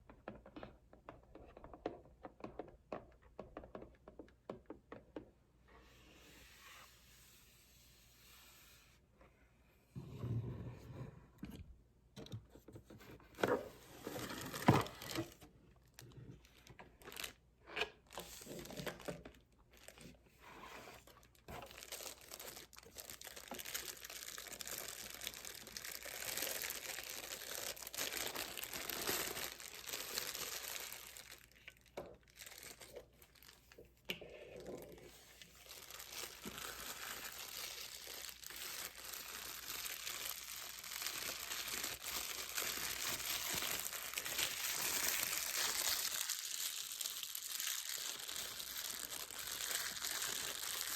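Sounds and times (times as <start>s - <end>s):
packaging crinkling and tearing: 14.0s - 20.2s, 20.9s - 33.9s, 34.6s - 50.9s.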